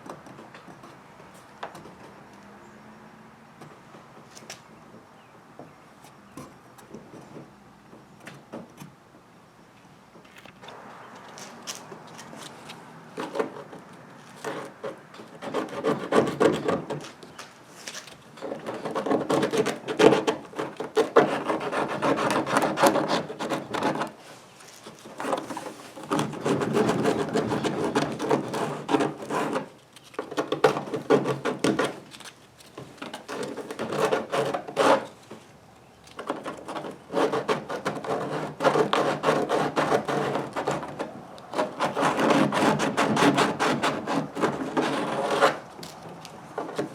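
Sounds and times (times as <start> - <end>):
hand sanding plastic: 11.3 - 35.2, 36.2 - 46.9.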